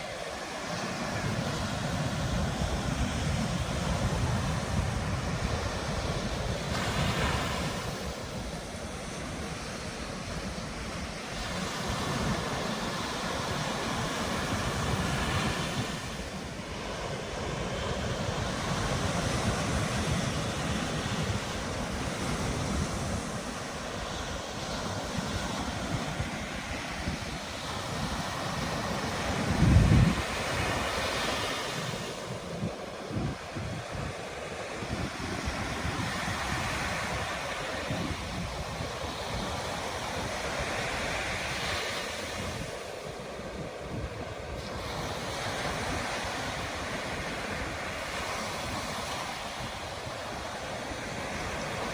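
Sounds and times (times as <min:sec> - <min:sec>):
ocean surf on beach: 0:00.0 - 0:51.9
wind on microphone: 0:00.0 - 0:51.9.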